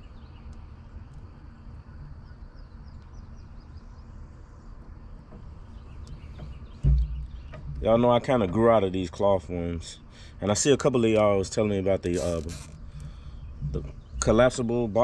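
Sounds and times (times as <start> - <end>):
small birds chirping: 0.0 - 15.0
low rumble: 12.9 - 15.0.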